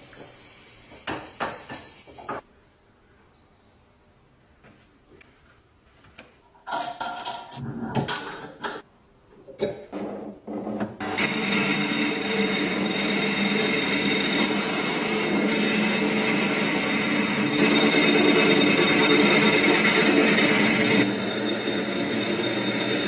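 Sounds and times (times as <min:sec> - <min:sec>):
metal parts scraping and clattering: 0:06.6 - 0:08.6
power tool running: 0:11.0 - 0:23.0.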